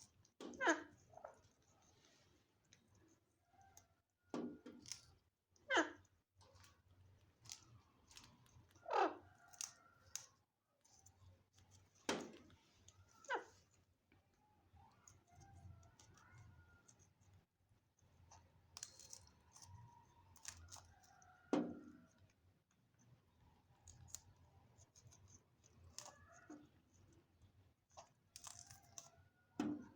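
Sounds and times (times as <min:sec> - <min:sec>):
parrot chirps and calls: 0:07.5 - 0:09.8.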